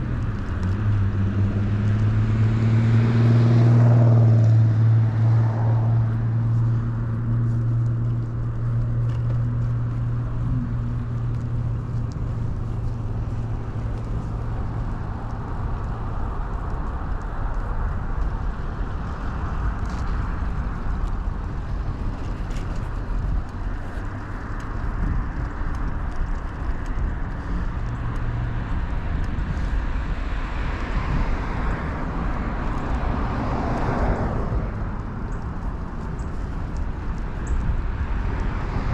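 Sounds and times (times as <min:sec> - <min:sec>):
bicycle tyre rumble: 0:00.0 - 0:38.9
low engine hum: 0:00.0 - 0:38.9
traffic noise: 0:00.0 - 0:38.9
vehicle passing: 0:00.0 - 0:38.9
wind rush: 0:09.7 - 0:38.9.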